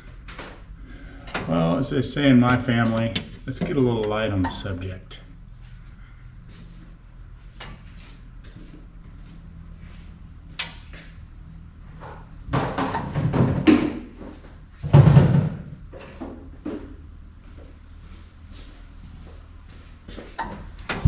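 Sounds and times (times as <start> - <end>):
faint low hum: 0.0 - 21.0
clatter and knocking: 12.5 - 14.1, 14.8 - 16.8.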